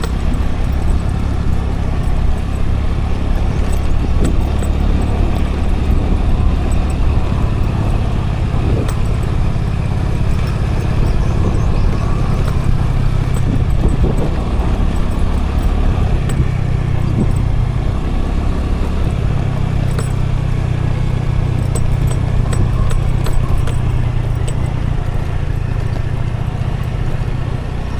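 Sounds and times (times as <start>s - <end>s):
light rattling ticks: 0.0s - 27.9s
road and wind noise: 0.0s - 27.9s
scooter engine running: 0.0s - 27.9s.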